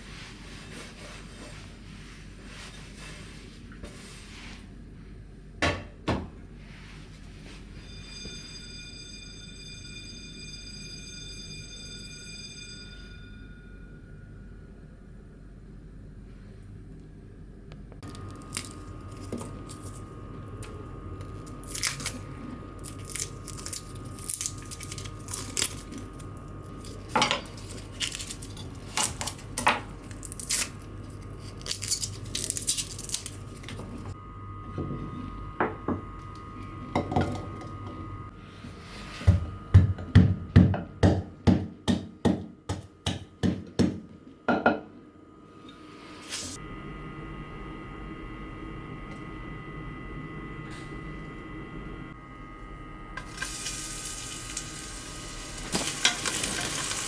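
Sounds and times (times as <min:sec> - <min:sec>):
dishes and utensils clinking: 0:27.1 - 0:27.9, 0:55.7 - 0:57.0.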